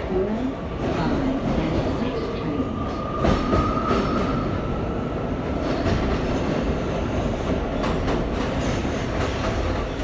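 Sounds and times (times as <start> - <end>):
subway car rumble: 0.0 - 10.0.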